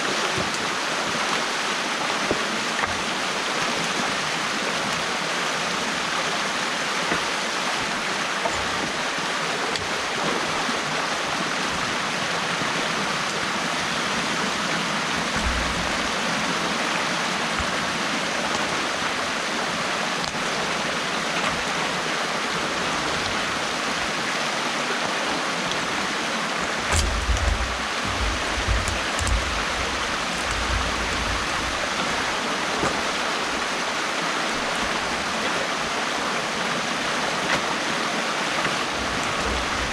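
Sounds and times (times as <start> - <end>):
water rushing through a dam: 0.0 - 39.9
low bumps: 15.2 - 16.3, 26.6 - 33.7.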